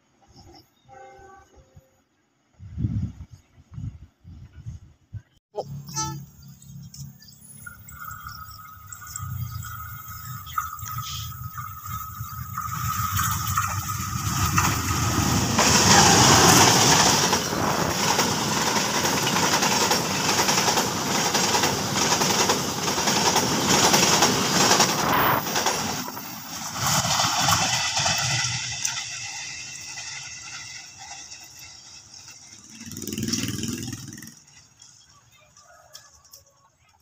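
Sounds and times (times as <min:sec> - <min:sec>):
passing train rumble: 0:05.6 - 0:35.6
wheels clacking over rail joints: 0:07.9 - 0:36.9.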